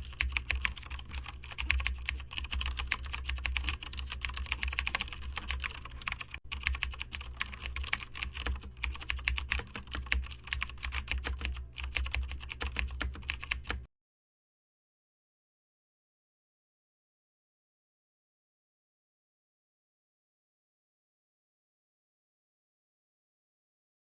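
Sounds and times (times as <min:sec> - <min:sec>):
fast typing on keyboard: 0:00.0 - 0:13.9
steady low hum: 0:00.0 - 0:13.9.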